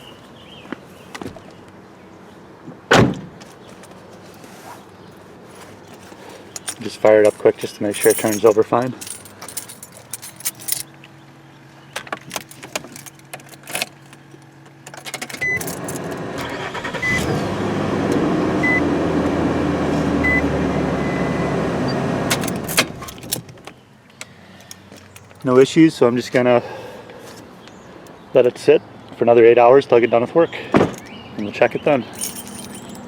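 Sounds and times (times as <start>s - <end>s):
keys jangling: 5.6s - 10.9s, 12.2s - 16.2s, 32.1s - 33.0s
truck engine running: 15.4s - 22.8s.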